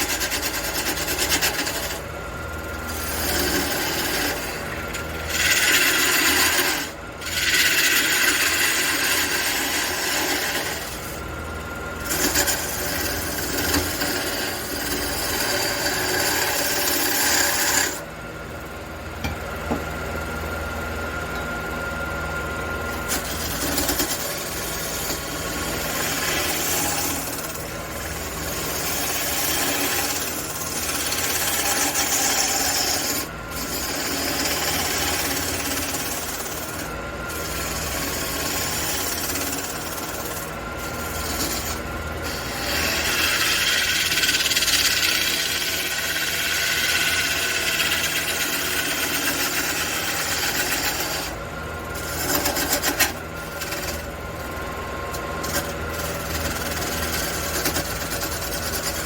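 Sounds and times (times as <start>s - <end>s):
sandpaper rasping on wood: 0.0s - 2.0s, 2.9s - 4.6s, 5.3s - 11.1s, 28.5s - 36.8s, 37.4s - 51.3s, 55.4s - 59.0s
wood lathe humming: 0.0s - 20.2s, 20.8s - 59.0s.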